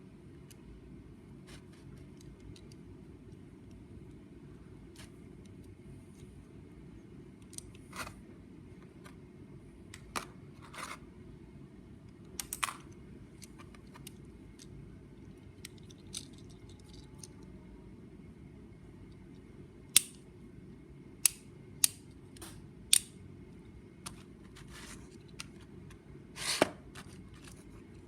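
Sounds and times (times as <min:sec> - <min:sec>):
low steady hum: 0:00.0 - 0:28.0
plastic parts clicking and rattling: 0:15.5 - 0:17.5.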